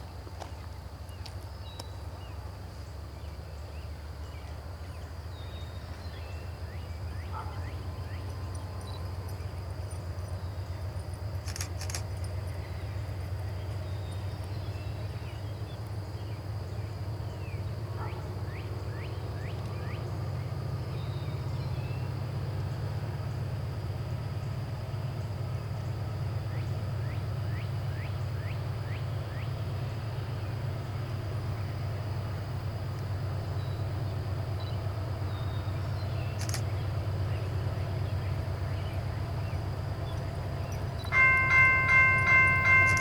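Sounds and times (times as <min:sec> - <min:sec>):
locomotive rumble: 0:02.0 - 0:43.0
birds chirping: 0:38.4 - 0:43.0.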